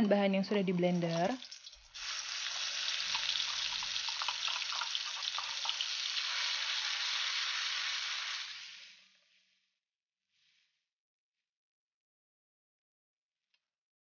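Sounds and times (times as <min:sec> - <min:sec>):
paste sizzling in hot oil: 0:00.1 - 0:09.4.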